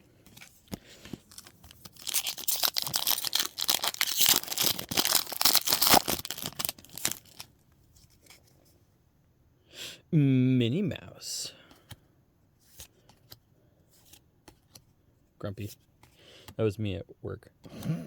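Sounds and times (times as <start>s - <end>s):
foil wrapper crinkling and tearing: 1.2s - 7.5s.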